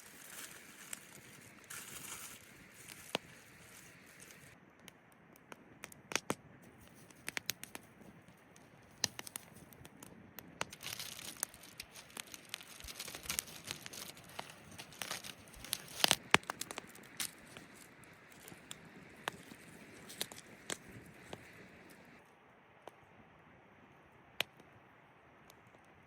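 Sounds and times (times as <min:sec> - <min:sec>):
crinkling rustling handling noise: 0:00.0 - 0:04.6, 0:10.6 - 0:22.2.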